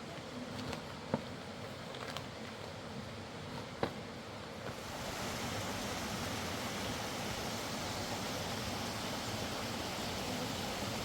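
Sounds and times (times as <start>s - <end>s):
river water rushing: 4.7s - 11.0s.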